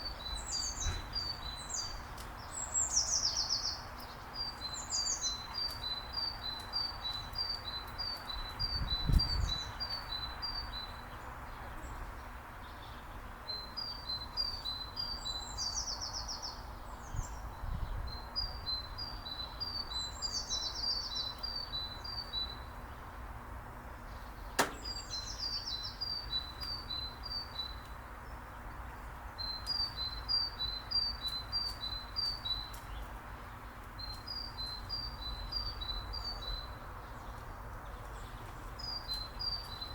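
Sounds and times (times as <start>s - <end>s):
songbird singing: 0.0s - 39.9s
sharp click: 24.6s - 24.9s.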